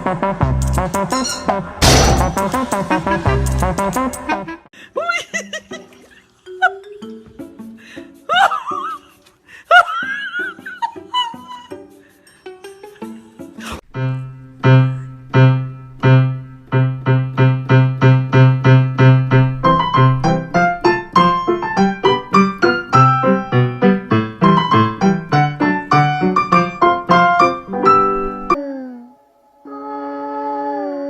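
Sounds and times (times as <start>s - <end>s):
piano playing a quick tune: 14.0s - 28.6s.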